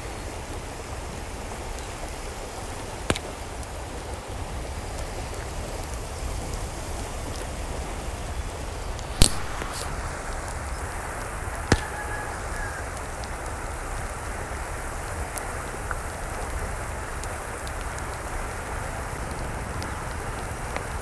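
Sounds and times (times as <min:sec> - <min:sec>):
rushing water: 0:00.0 - 0:21.0
sharp clicks: 0:09.0 - 0:10.6, 0:11.7 - 0:12.0.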